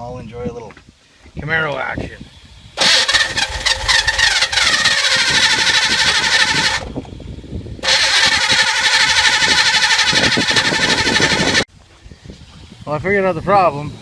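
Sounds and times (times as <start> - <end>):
car engine cranking on starter: 2.8 - 6.9, 7.8 - 11.6.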